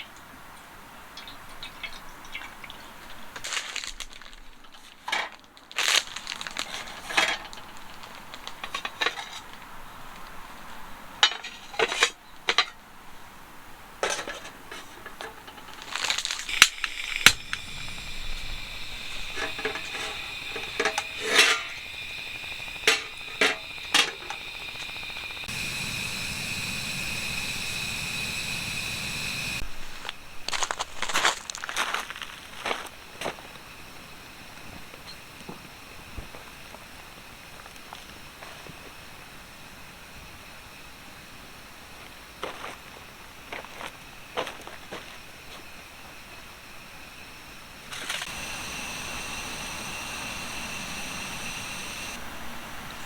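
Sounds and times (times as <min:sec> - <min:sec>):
low hum: 0:16.5 - 0:29.6, 0:48.2 - 0:53.0
steady high tone: 0:16.5 - 0:29.6, 0:48.2 - 0:52.2.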